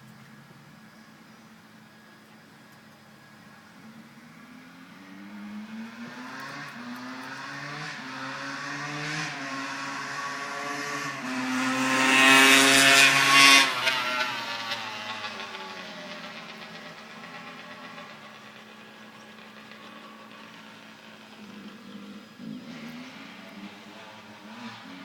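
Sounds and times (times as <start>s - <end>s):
dirt bike engine accelerating: 4.0s - 25.0s.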